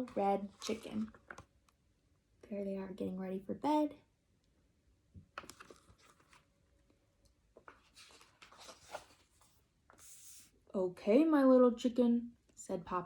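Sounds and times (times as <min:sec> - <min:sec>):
book pages turning: 0:00.0 - 0:01.5, 0:05.3 - 0:06.6, 0:07.5 - 0:10.4.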